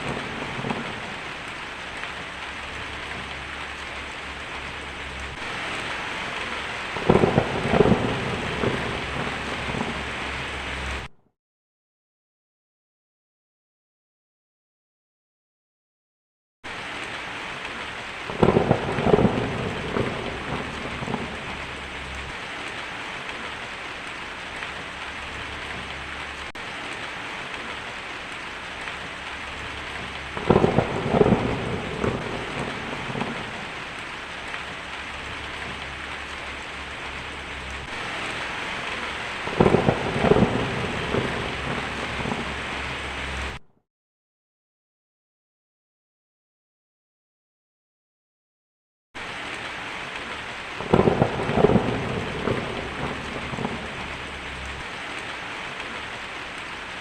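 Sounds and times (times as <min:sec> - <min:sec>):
crackling thunderclaps: 0:00.0 - 0:11.1, 0:16.7 - 0:43.6, 0:49.2 - 0:56.3
heavy rain: 0:00.0 - 0:11.1, 0:16.7 - 0:43.6, 0:49.2 - 0:57.0.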